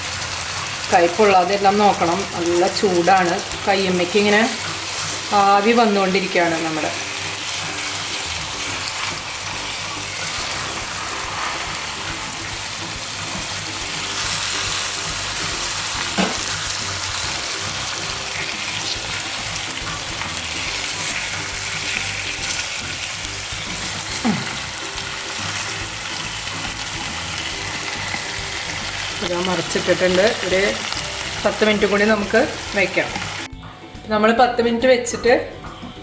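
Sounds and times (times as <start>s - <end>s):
chicken sizzling in a pot: 0.0s - 33.9s
utensil knocking against pot: 16.1s - 16.5s.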